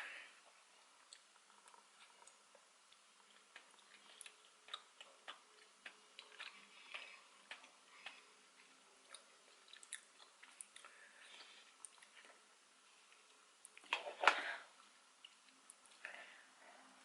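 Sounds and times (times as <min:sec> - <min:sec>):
wet mouth chewing clicks: 0:09.0 - 0:11.0.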